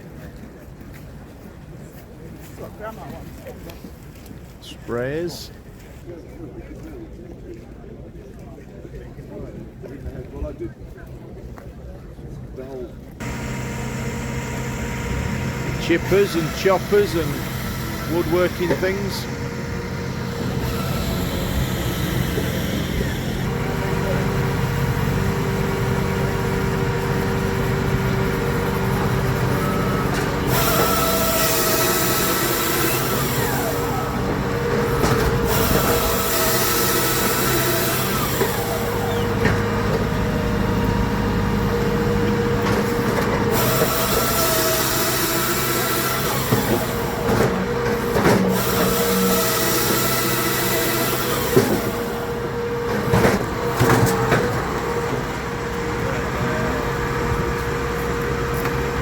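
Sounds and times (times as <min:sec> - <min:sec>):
loud hissing: 0:13.2 - 0:23.5
machinery engine droning: 0:13.2 - 0:59.0.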